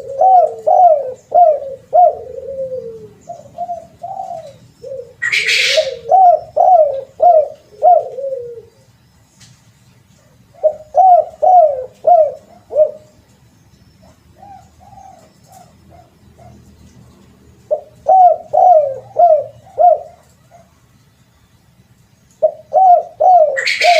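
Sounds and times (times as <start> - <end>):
dove cooing: 0.0 - 9.0, 10.2 - 13.3, 14.0 - 20.9, 22.4 - 23.9.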